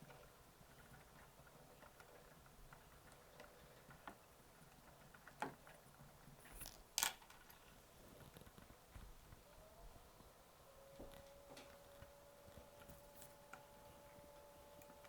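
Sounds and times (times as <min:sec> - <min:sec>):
small parts and tools clicking: 0:00.1 - 0:08.6.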